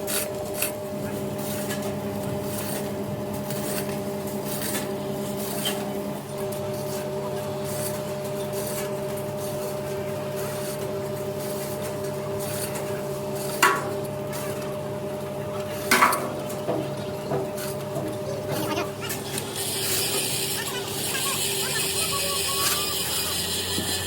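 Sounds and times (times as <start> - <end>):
steady machine hum: 0.0 - 24.0
metal clanks of steel: 15.8 - 18.7.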